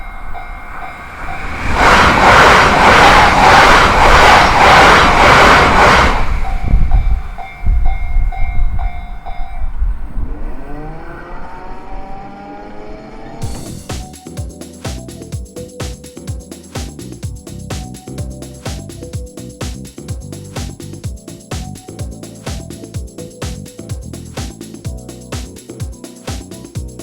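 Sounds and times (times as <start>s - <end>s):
crossing warning bell ringing: 0.0s - 1.8s, 5.5s - 11.0s, 13.4s - 16.6s
rising whine: 0.0s - 7.9s, 9.6s - 16.0s
train wheels clattering: 1.0s - 9.5s.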